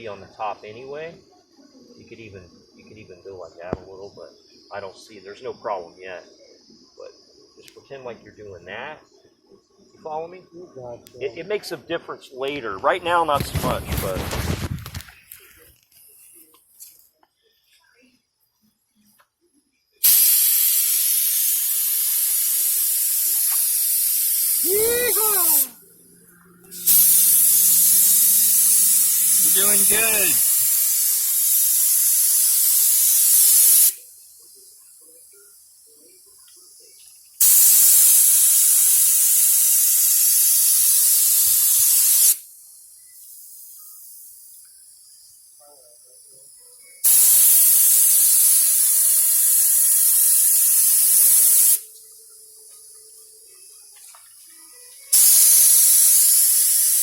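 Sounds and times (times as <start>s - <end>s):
paint spray gun hissing: 20.0s - 25.8s, 26.7s - 57.0s.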